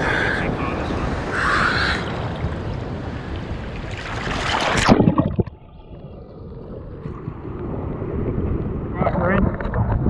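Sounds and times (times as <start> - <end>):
sea waves and surf: 0.0 - 10.0
loud water splash: 3.9 - 5.5.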